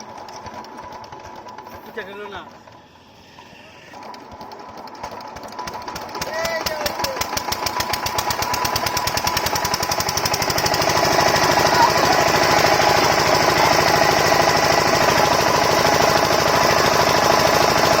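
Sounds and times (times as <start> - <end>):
diesel engine knocking: 4.2 - 18.0.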